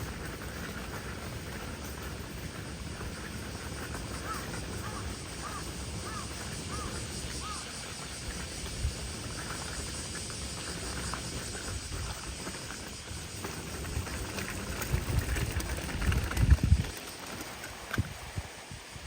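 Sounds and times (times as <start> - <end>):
wind rush: 13.8 - 17.0.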